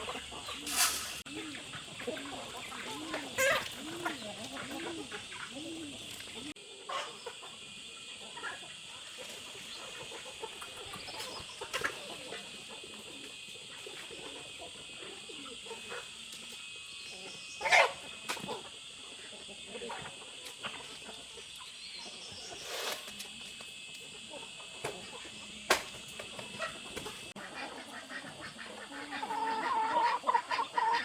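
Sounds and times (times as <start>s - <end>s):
chickens clucking: 0.0s - 31.0s
loud chicken call: 27.6s - 31.0s.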